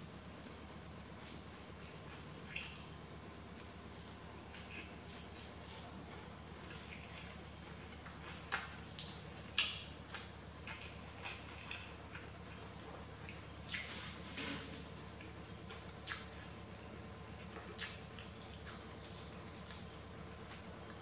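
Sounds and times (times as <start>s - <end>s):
person chewing noodles: 17.5s - 19.8s.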